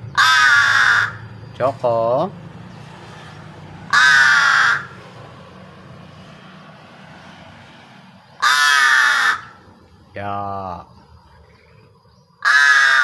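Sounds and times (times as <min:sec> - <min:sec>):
crow cawing: 0:00.0 - 0:01.4, 0:03.8 - 0:05.2, 0:08.3 - 0:09.8, 0:12.4 - 0:13.0.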